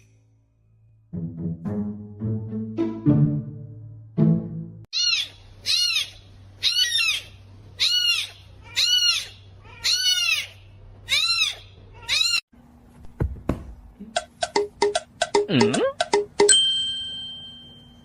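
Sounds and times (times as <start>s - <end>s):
animal high-pitched calls: 5.0s - 12.4s.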